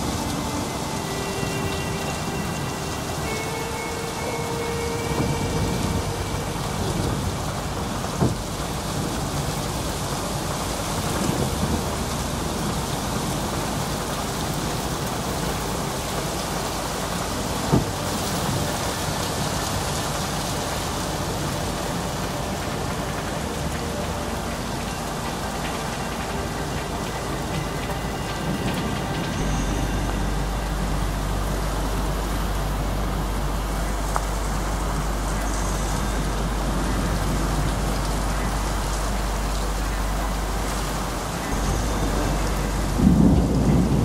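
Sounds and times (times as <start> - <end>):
torrential rain in strong wind: 0.0 - 44.0.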